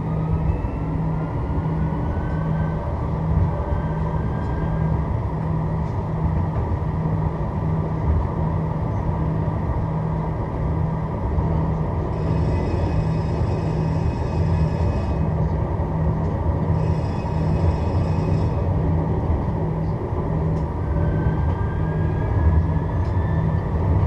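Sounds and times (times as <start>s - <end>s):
tram wheels rumbling: 0.0s - 24.0s
high electric whine: 12.1s - 15.3s, 16.7s - 18.7s.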